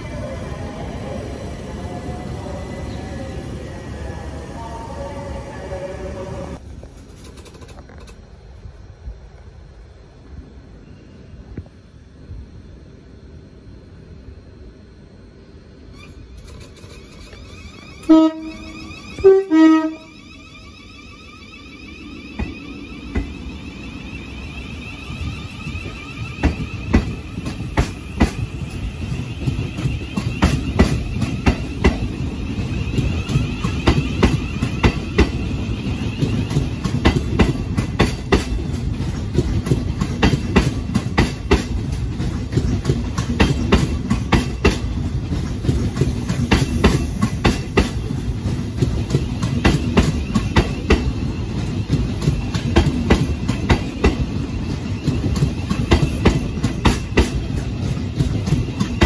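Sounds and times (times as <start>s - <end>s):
train low rumble: 0.0s - 59.0s
train wheels clicking over rail joints: 6.7s - 8.3s, 16.0s - 18.7s, 25.0s - 59.0s.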